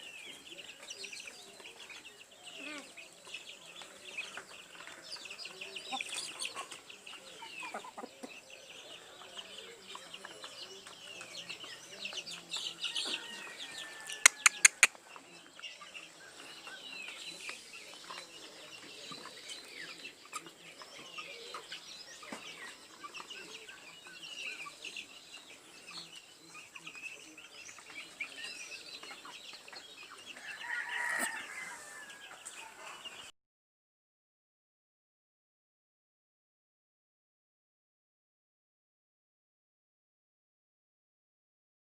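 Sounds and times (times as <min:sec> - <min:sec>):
birds chirping and clucking: 0:00.0 - 0:33.3
sharp clicks: 0:14.3 - 0:14.9.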